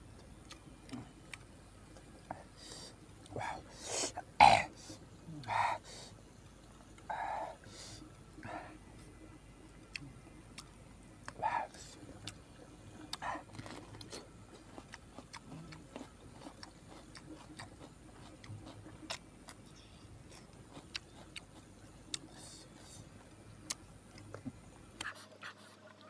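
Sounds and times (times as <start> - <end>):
person chewing: 0.2 - 5.8, 9.9 - 12.4, 13.0 - 25.2
wet lip smacks: 25.0 - 25.2.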